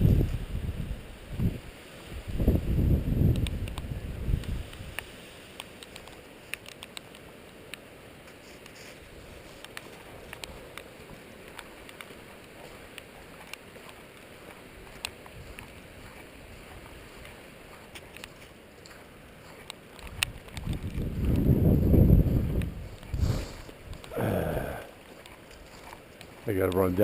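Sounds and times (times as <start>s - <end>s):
wind buffeting microphone: 0.0s - 5.0s, 14.7s - 17.8s, 20.0s - 27.0s
wind hiss: 0.0s - 27.0s
raindrops ticking: 17.9s - 21.5s, 22.6s - 27.0s.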